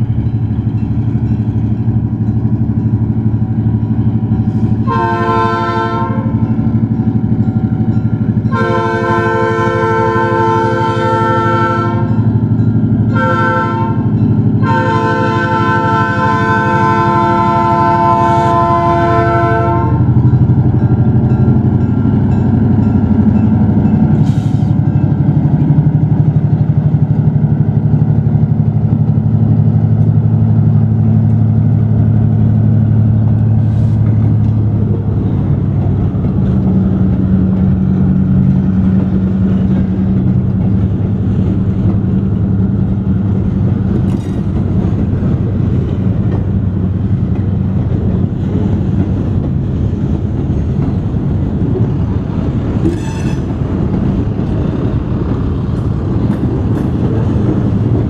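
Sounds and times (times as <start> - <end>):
locomotive engine running: 0.0 - 58.0.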